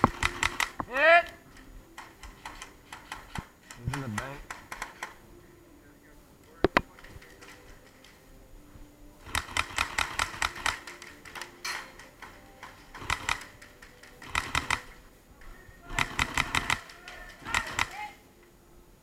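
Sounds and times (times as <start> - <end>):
airsoft gun firing clicking shots: 0.0 - 0.9, 2.0 - 5.2, 9.2 - 15.0, 15.9 - 18.1.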